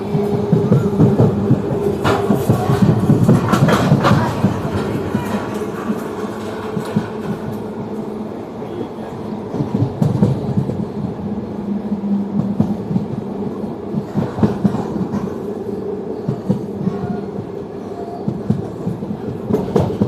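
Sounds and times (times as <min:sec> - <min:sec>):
wheels knocking: 0:00.0 - 0:07.7
train rumbling on rails: 0:00.0 - 0:20.0.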